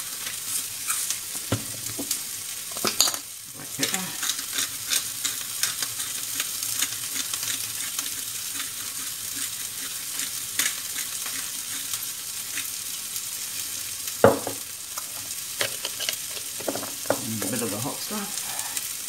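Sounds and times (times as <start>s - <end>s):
onions sizzling in hot oil: 0.0s - 19.0s
pepper mill grinding: 2.7s - 13.2s, 14.3s - 18.8s.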